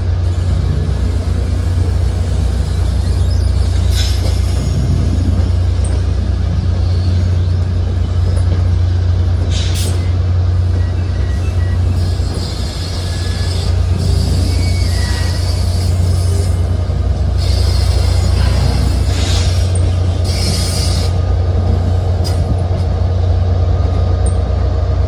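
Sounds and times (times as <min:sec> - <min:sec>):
train coaches humming low: 0:00.0 - 0:25.0.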